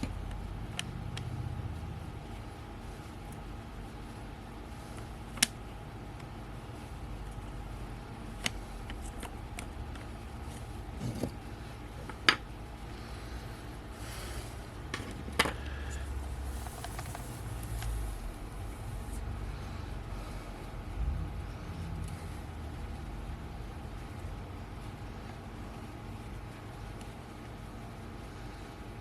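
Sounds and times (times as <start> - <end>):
low rumble: 16.2 - 22.5.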